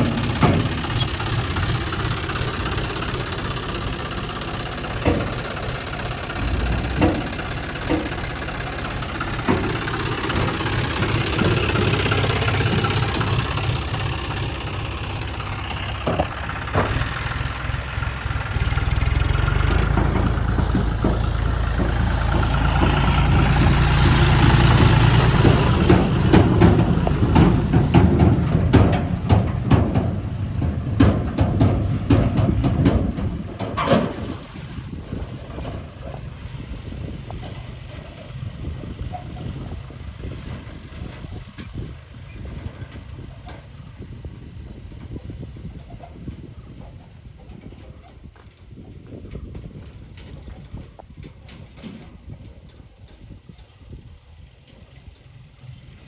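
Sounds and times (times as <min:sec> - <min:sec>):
sharp knocks: 0:00.0 - 0:34.6
tractor diesel engine running: 0:00.0 - 0:56.0.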